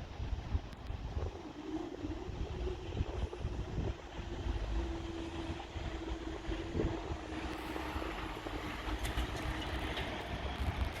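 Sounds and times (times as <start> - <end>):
diesel train rumbling: 0.0 - 11.0.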